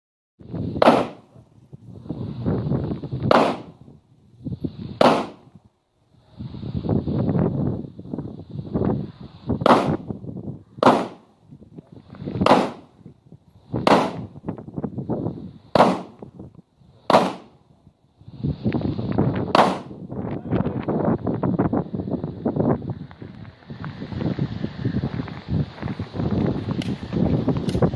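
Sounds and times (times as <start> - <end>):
wind buffeting microphone: 0.4 - 27.9
pistol shots: 0.8 - 1.2, 3.3 - 3.7, 5.0 - 5.4, 9.6 - 10.0, 10.8 - 11.2, 12.4 - 12.9, 13.8 - 14.2, 15.7 - 16.2, 17.1 - 17.5, 19.5 - 19.9.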